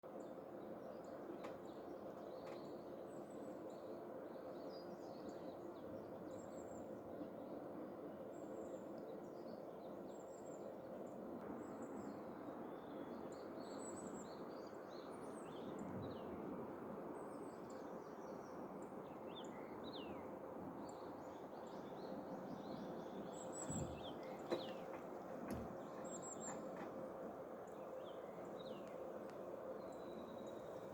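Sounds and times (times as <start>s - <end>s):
birds chirping: 21.2s - 30.9s.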